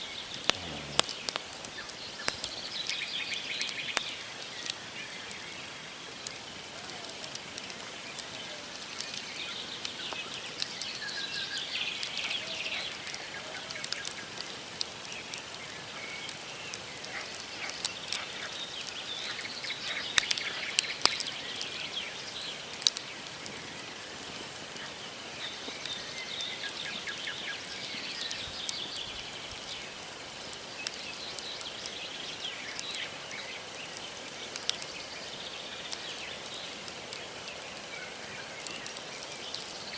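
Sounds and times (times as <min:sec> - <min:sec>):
small birds chirping: 0:00.0 - 0:05.7, 0:15.2 - 0:39.9
campfire crackling and popping: 0:00.0 - 0:39.9.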